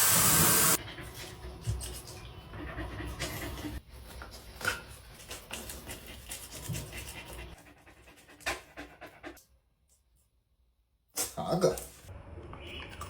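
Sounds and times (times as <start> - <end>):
dog panting: 0.7 - 9.4.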